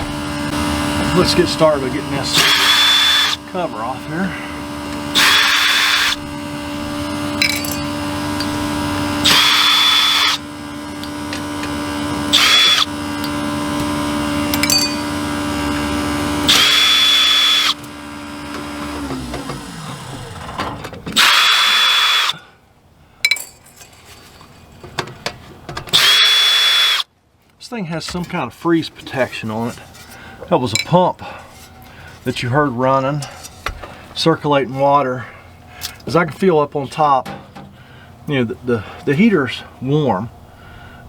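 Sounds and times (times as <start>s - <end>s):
power drill driving screws: 0.0s - 22.4s, 25.9s - 27.1s
water pump humming: 0.0s - 22.4s.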